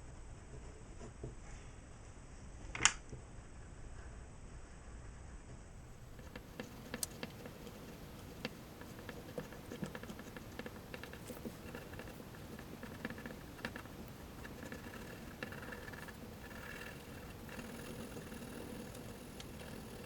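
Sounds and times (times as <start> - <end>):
pencil scratching and tapping on paper: 6.1 - 20.0.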